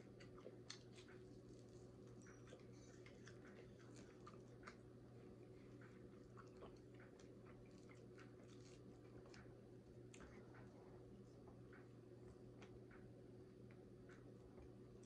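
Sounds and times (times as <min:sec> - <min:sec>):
chewing crunchy fried chicken: 0:00.0 - 0:11.8.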